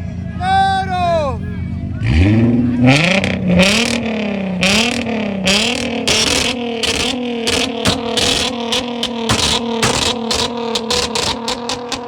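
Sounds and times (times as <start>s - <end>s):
car engine revving hard: 1.9s - 12.0s
hiss pulses: 4.8s - 12.0s.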